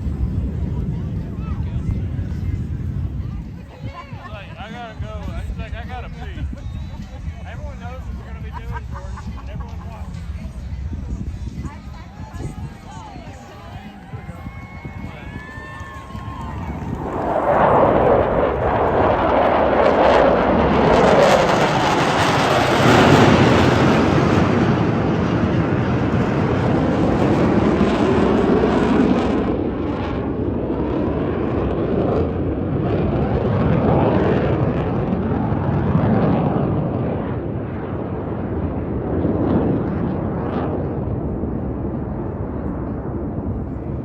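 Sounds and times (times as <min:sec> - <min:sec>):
jets flying past: 0:12.6 - 0:44.0.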